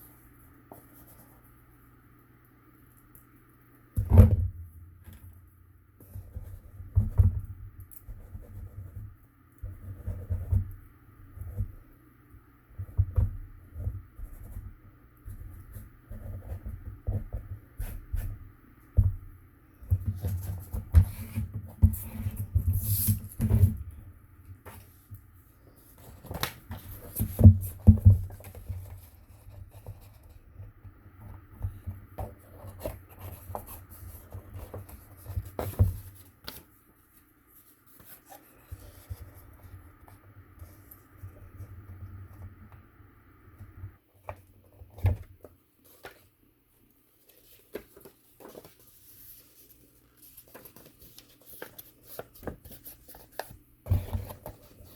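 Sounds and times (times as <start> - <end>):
paper rustling and scraping: 24.6 - 30.4, 31.6 - 41.7, 47.2 - 54.9.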